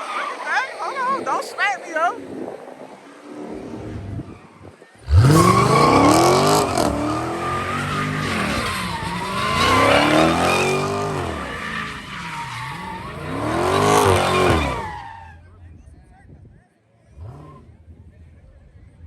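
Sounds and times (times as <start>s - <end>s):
car engine revving hard: 5.0s - 15.0s, 17.2s - 18.1s
tyres squealing: 5.0s - 15.4s.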